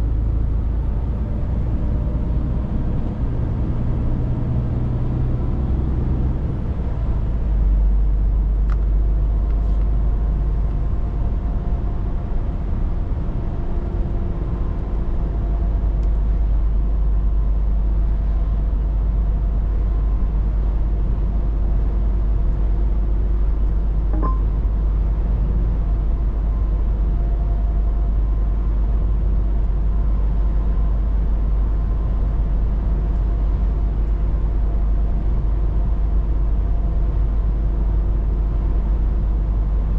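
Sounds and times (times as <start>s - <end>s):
truck engine and road drone: 0.0s - 39.9s
brief tick: 24.2s - 24.5s.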